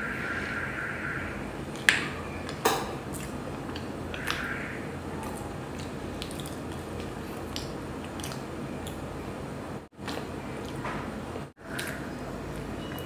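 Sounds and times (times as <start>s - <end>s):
chewing with wet mouth noises: 1.7s - 13.0s
mouth smacks: 5.1s - 9.0s, 11.6s - 12.7s.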